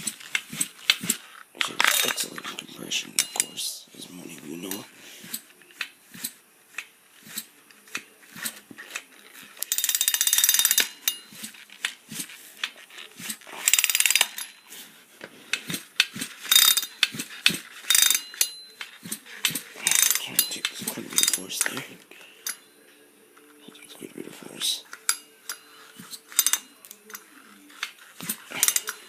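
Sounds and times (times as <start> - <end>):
handling clicks and knocks: 24.9 - 29.0.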